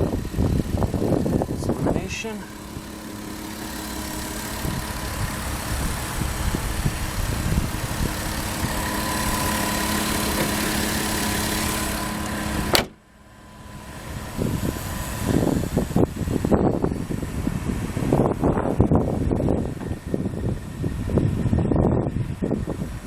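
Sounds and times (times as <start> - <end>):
car engine idling: 0.0 - 23.0
sharp click: 12.7 - 13.0.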